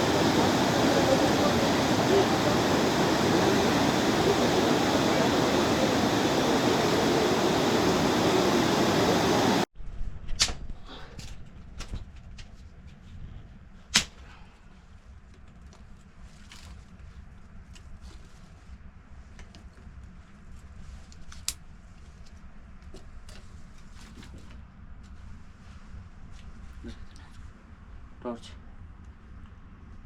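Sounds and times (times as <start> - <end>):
rushing water: 0.0 - 9.7.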